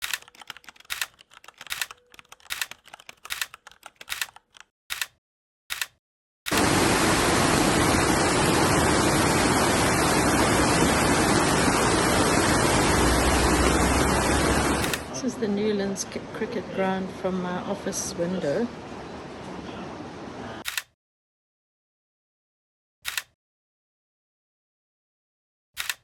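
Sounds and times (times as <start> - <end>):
stormy weather rushing noise: 6.5 - 16.2.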